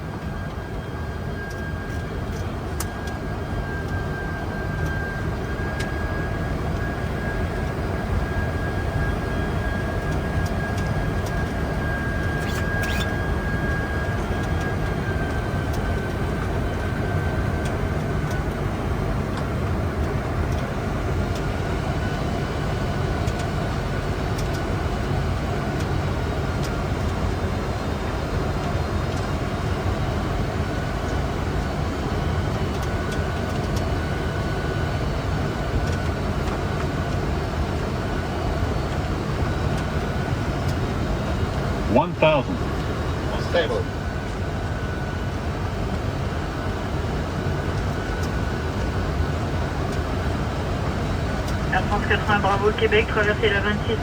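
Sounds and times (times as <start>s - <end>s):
aircraft engines and airflow rushing: 0.0s - 54.0s
faint high whine: 51.0s - 54.0s.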